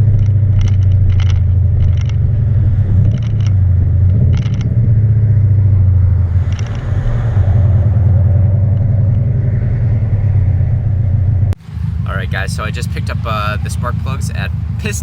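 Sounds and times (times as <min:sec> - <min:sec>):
car exhaust drone: 0:00.0 - 0:15.0.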